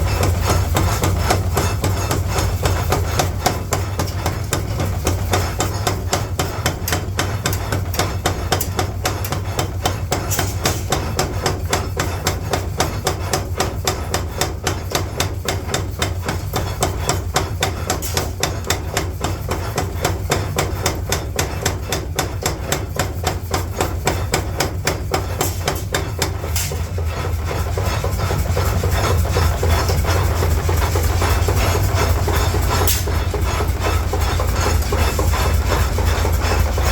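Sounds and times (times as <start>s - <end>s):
steady mechanical noise: 0.0s - 36.9s
low machine hum: 23.0s - 36.9s.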